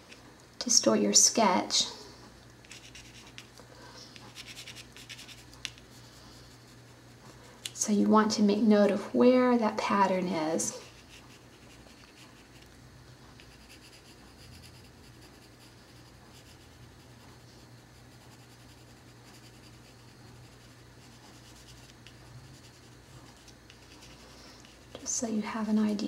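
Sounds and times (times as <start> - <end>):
faint low hum: 0.0 - 26.0
pencil scratching on paper: 2.7 - 3.5, 4.3 - 7.2, 10.7 - 12.7, 13.4 - 24.9.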